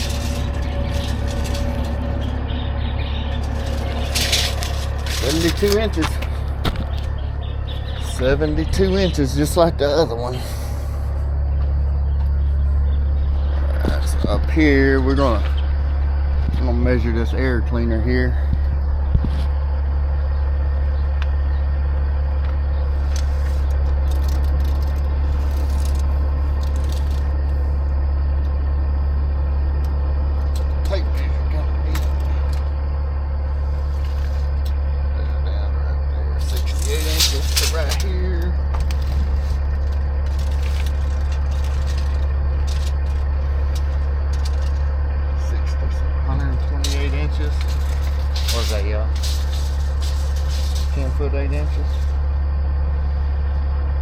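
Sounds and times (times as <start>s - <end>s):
engine idling: 0.0s - 54.0s
low mechanical hum: 0.0s - 54.0s
faint clicks and scrapes: 38.8s - 44.9s.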